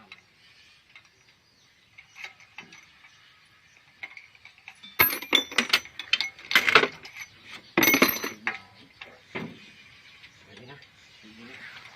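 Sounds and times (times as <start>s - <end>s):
metal tools clicking and clinking: 2.0s - 3.2s, 4.0s - 9.1s.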